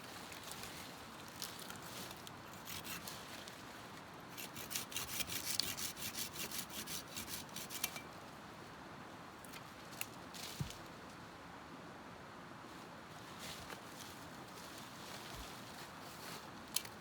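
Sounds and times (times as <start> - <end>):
hand tool scraping on wood: 2.5 - 3.2, 4.3 - 8.1.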